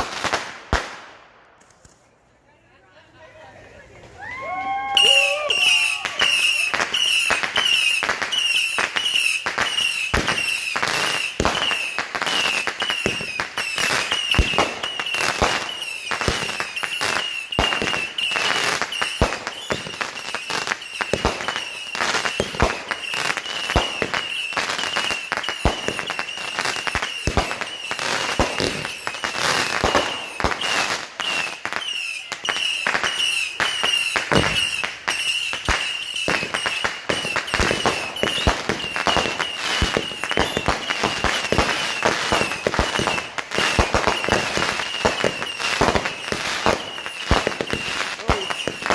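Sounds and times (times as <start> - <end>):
fireworks cracking: 0.0 - 2.2, 3.1 - 48.9.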